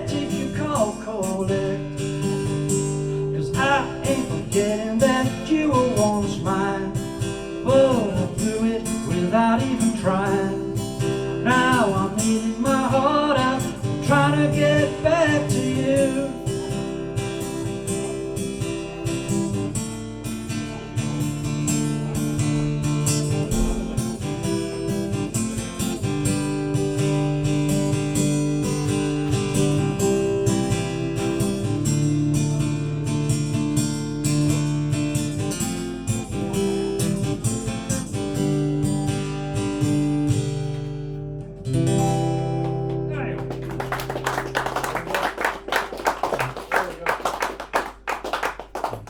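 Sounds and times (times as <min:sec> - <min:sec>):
acoustic guitar strumming chords: 0:00.0 - 0:48.2.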